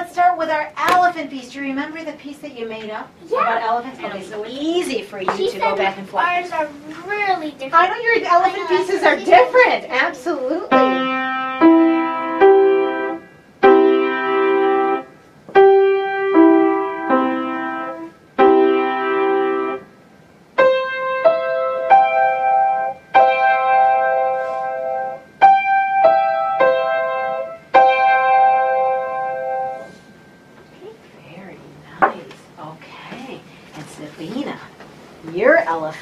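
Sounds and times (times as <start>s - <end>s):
piano melody: 10.6s - 30.7s.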